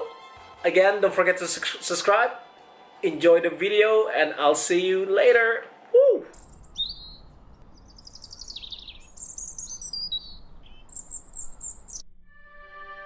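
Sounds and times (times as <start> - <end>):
small birds chirping and twittering: 6.4 - 12.0.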